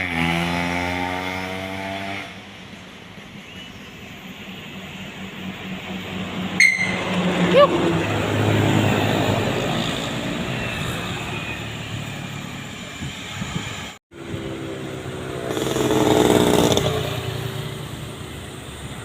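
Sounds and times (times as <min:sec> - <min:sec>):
vehicle engines climbing uphill: 0:00.0 - 0:19.0
vehicle engine passing: 0:04.4 - 0:19.0.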